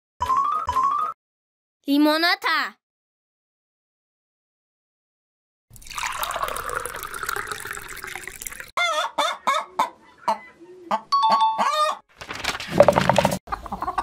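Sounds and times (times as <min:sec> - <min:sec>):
hen clucking: 0:08.8 - 0:12.1, 0:13.5 - 0:14.0.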